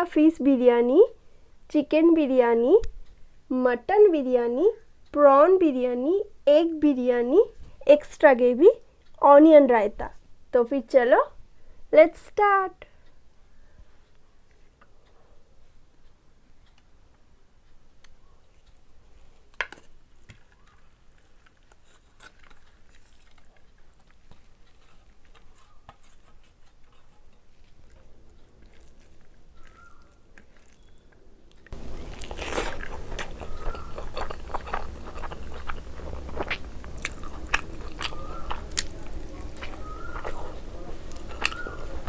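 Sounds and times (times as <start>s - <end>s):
chewing with wet mouth clicks: 20.5s - 42.0s.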